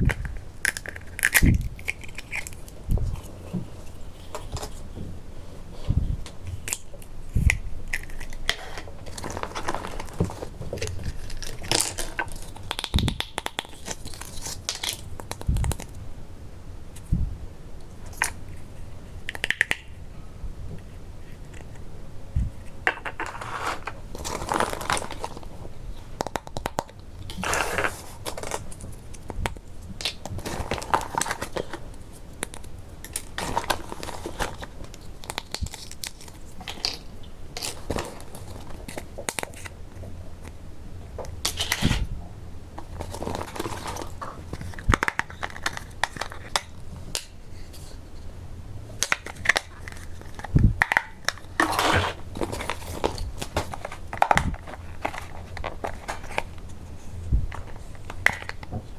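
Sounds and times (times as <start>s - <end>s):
plastic packaging crinkling: 0.0s - 4.9s, 6.4s - 16.0s, 22.8s - 39.8s, 42.8s - 47.4s, 49.0s - 56.8s.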